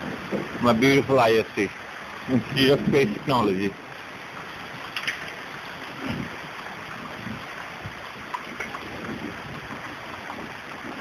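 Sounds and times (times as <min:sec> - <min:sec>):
wind buffeting microphone: 0:00.0 - 0:01.2, 0:02.3 - 0:03.5, 0:05.8 - 0:11.0
heavy rain hissing: 0:00.0 - 0:11.0.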